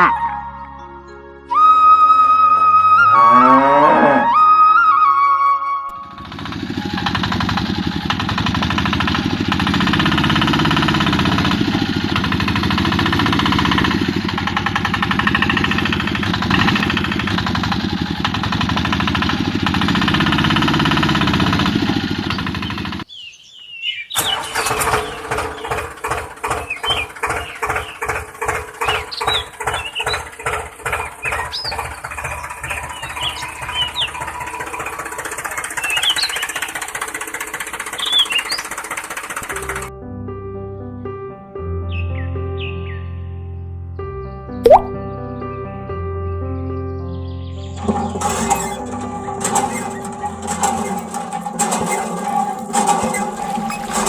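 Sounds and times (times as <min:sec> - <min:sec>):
small motor buzzing and chugging: 0:05.9 - 0:23.1, 0:24.2 - 0:39.9, 0:47.8 - 0:54.0.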